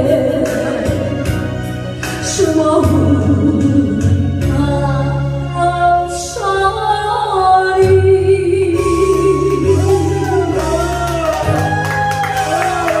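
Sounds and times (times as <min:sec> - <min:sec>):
musical accompaniment with bass: 0:00.0 - 0:13.0.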